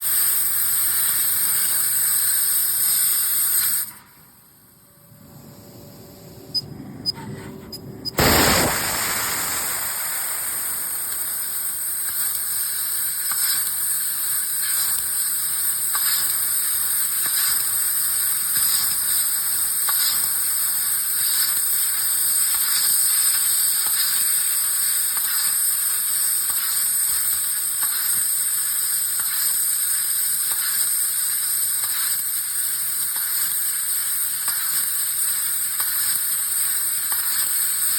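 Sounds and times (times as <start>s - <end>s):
laser cutter hissing and sizzling: 0.0s - 4.0s, 8.2s - 37.9s.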